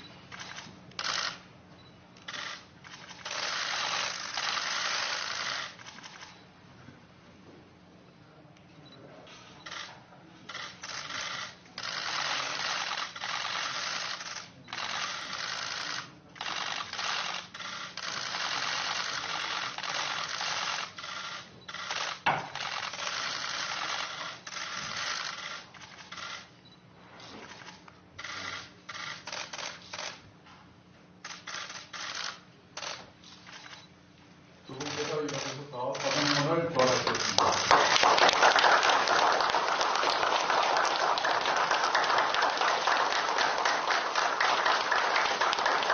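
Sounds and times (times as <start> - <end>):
camera shutters clicking: 0.3 - 1.4, 2.2 - 6.4, 9.6 - 26.5, 27.4 - 30.2, 31.2 - 33.9, 34.7 - 38.4.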